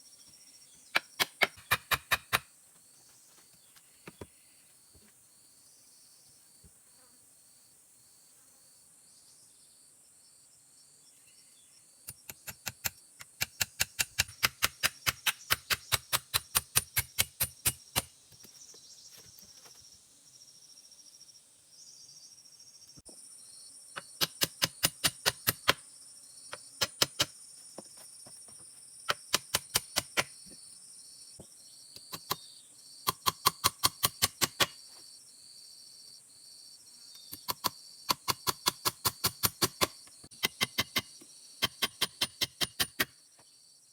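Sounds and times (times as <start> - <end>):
insects chirring: 0.0 - 43.9
rapid sharp knocks: 1.0 - 2.4.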